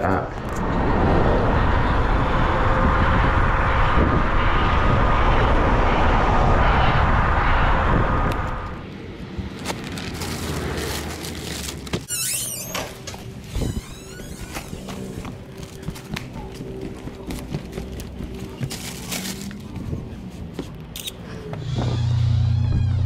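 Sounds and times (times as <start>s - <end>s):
electric scooter whine: 0.3s - 11.1s
wind rushing over microphone: 0.4s - 9.6s, 13.5s - 15.4s
metal gate squeaking: 12.1s - 14.7s, 21.6s - 23.0s.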